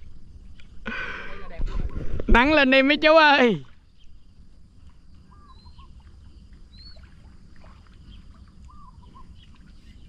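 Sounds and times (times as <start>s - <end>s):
faint bird chirps: 3.7s - 10.0s.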